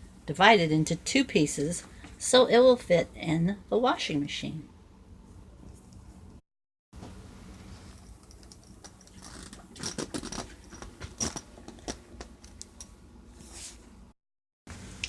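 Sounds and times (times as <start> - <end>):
zipper being pulled open: 9.1 - 10.7.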